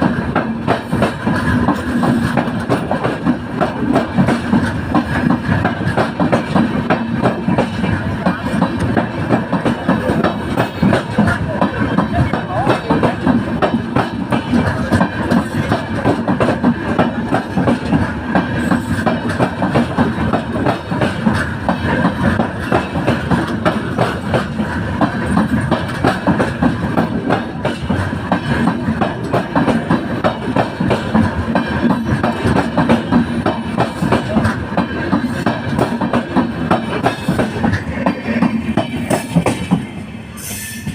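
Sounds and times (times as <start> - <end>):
train wheels clattering: 0.0 - 40.9.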